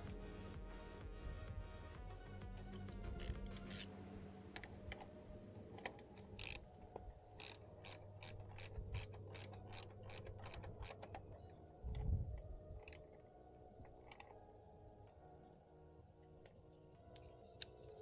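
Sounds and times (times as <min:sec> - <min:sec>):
faint low hum: 0:00.0 - 0:18.0
ratchet wrench clicking: 0:03.0 - 0:03.9, 0:06.4 - 0:06.6.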